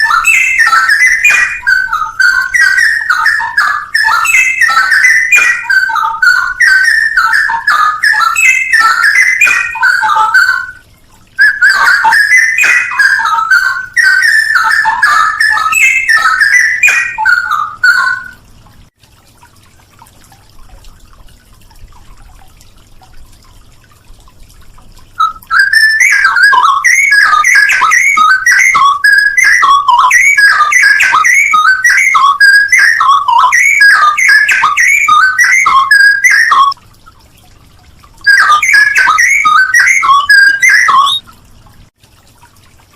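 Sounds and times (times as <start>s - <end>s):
bird singing whistled phrases: 0.0s - 10.8s, 11.4s - 18.4s, 25.2s - 36.8s, 38.2s - 41.3s.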